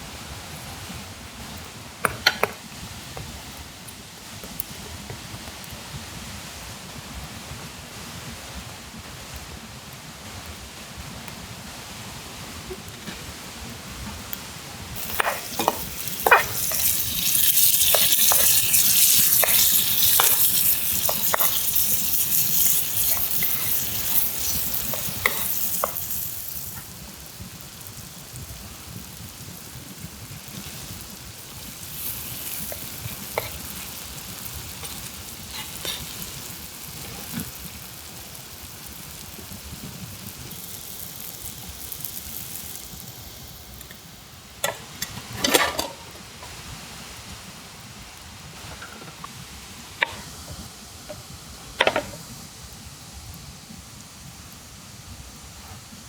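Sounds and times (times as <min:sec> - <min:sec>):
food sizzling in a pan: 0:00.0 - 0:08.9, 0:10.8 - 0:56.0
utensil clicking against pan: 0:02.0 - 0:02.6, 0:15.0 - 0:27.4, 0:31.4 - 0:37.8, 0:44.6 - 0:46.0, 0:50.0 - 0:50.3.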